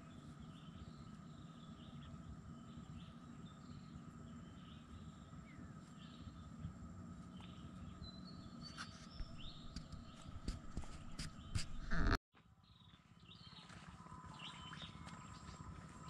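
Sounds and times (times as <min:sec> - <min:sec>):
birds chirping: 0:07.3 - 0:12.2
footstep clicks: 0:09.2 - 0:12.2.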